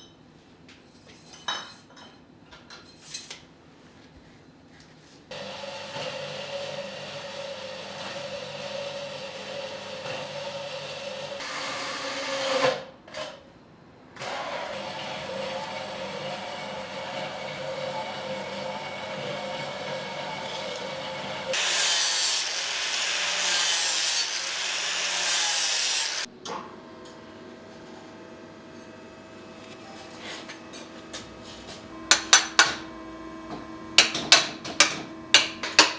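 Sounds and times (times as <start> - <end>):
power tool motor whining: 14.2 - 26.3.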